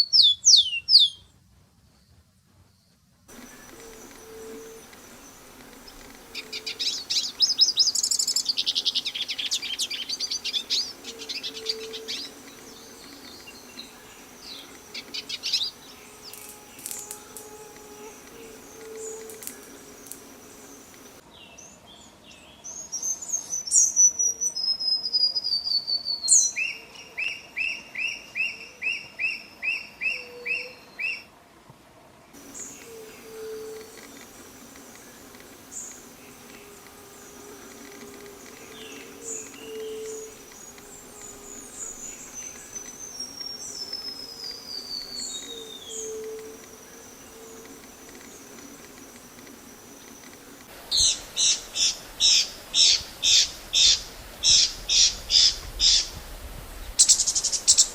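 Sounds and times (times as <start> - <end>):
birds singing: 0.0 - 1.3, 3.3 - 24.6, 32.4 - 56.1, 57.0 - 57.9
high insect drone: 3.3 - 21.2, 32.4 - 57.9
low hooting calls: 3.3 - 21.2, 32.4 - 56.1.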